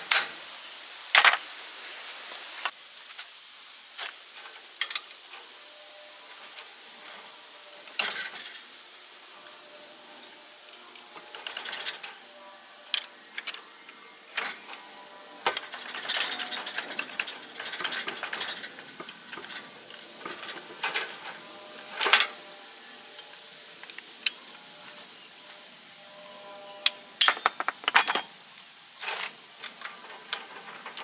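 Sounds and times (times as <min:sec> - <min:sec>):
hand tools on metal: 0:27.2 - 0:28.3
metallic clatter: 0:27.2 - 0:28.3.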